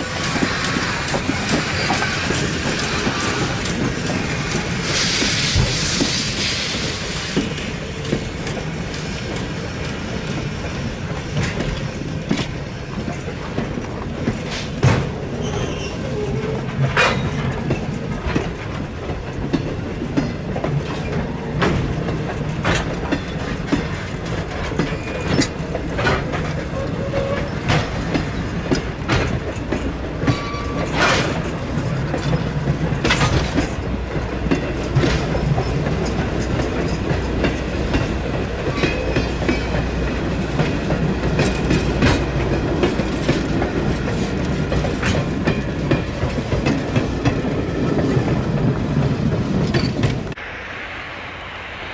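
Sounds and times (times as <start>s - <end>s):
train rumbling on track: 0.0s - 51.9s
wheel clicks over rail joints: 11.1s - 50.3s.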